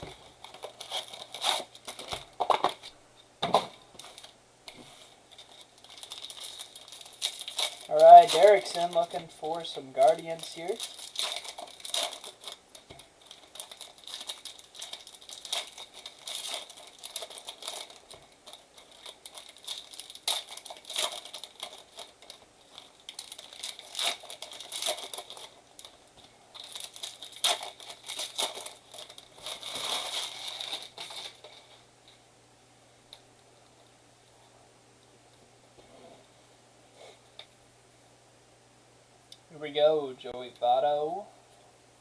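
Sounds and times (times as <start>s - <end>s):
card pack wrappers crinkling and tearing: 0.0s - 3.0s, 3.6s - 31.8s.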